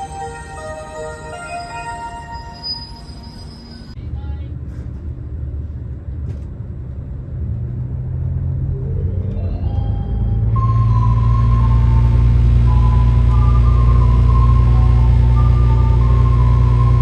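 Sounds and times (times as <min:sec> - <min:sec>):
rising tone: 0:00.0 - 0:04.0, 0:08.6 - 0:17.0
station approach melody: 0:00.0 - 0:04.0, 0:08.9 - 0:17.0
train rumbling on rails: 0:00.0 - 0:17.0.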